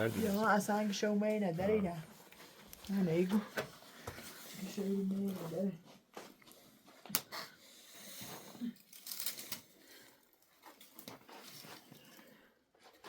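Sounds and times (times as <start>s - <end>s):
faint rustling and crinkling: 0.0s - 13.0s.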